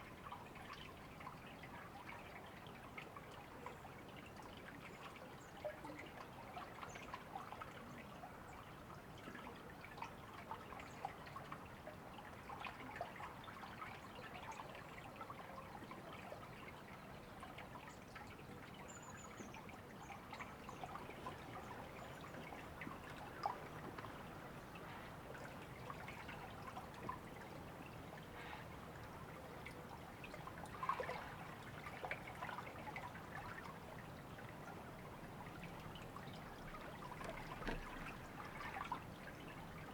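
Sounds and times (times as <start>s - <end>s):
river water babbling: 14.7s - 39.9s
water splashes: 21.2s - 39.9s.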